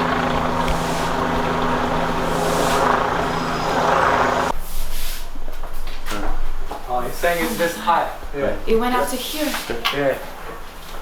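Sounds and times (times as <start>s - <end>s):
motor humming: 0.0s - 4.5s.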